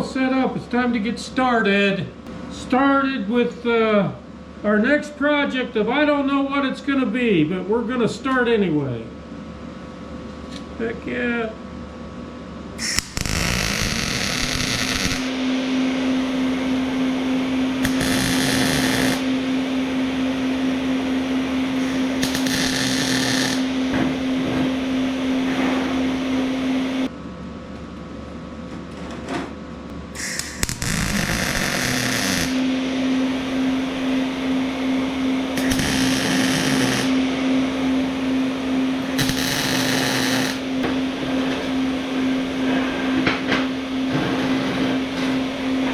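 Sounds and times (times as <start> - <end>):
grinder grinding steel: 12.8 - 15.3, 17.8 - 19.2, 21.8 - 24.8, 30.2 - 32.6, 35.6 - 37.1, 39.1 - 40.6
angle grinder whine: 12.8 - 27.1, 30.2 - 45.9.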